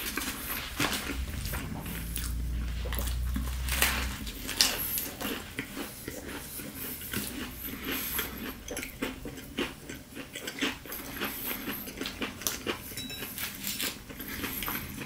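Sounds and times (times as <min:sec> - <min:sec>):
chewing crispy fried chicken: 0:00.0 - 0:15.0.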